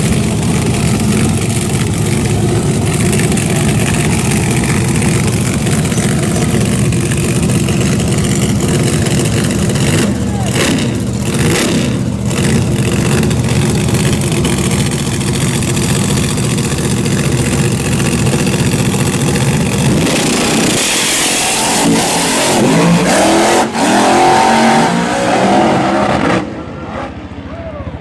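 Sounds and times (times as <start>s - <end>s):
drag racing engines: 0.0s - 28.0s.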